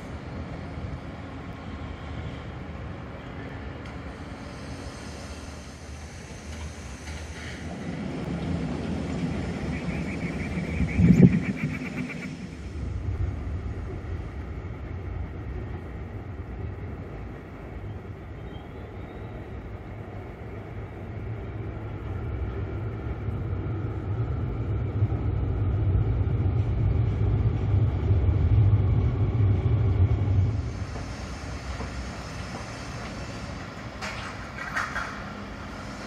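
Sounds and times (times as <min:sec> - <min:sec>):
train rumbling over steel bridge: 0:00.0 - 0:36.0.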